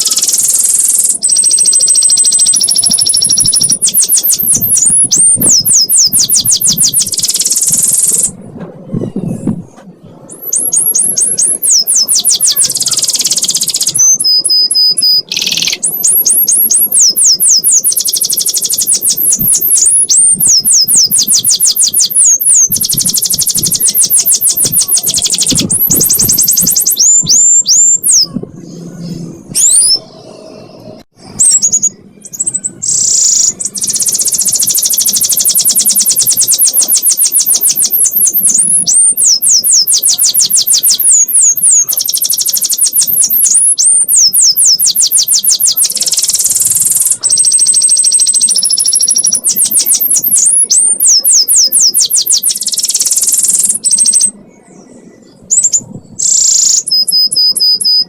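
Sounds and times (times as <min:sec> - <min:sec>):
canary singing rapid trills: 0:00.0 - 0:08.4, 0:10.3 - 0:54.4, 0:55.1 - 0:58.0.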